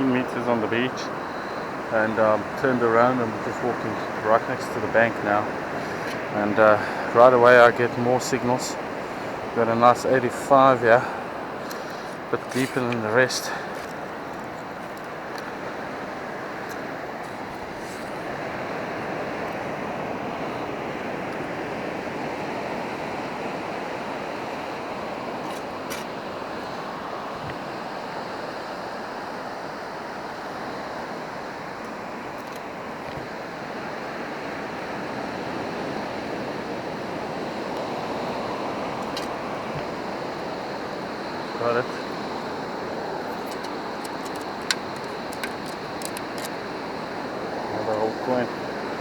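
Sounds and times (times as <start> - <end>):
surf washing onto beach: 0.0 - 49.0
faint clicks: 43.4 - 46.6.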